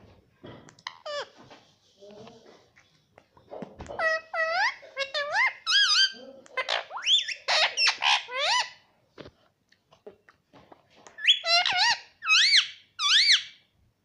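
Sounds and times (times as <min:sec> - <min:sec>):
parrot high wavering calls: 0:04.0 - 0:08.8, 0:11.2 - 0:13.6.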